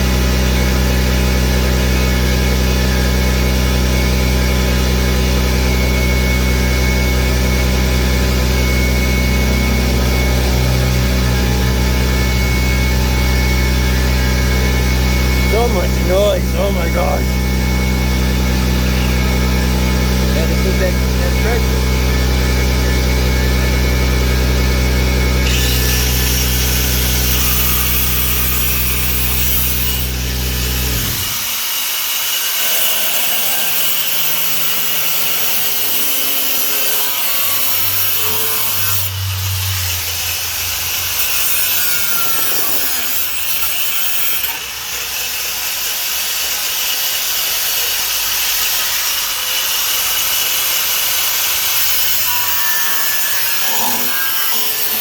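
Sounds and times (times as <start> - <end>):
angle grinder cutting sheet metal: 0.0 - 55.0
low steady machine hum: 5.7 - 25.7.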